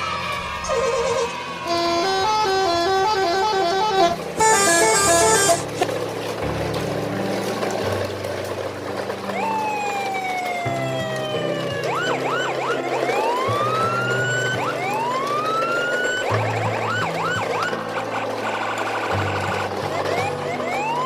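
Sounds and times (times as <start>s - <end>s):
siren: 0.0s - 5.9s, 9.2s - 21.0s
vehicle horn playing a tune: 1.1s - 5.9s.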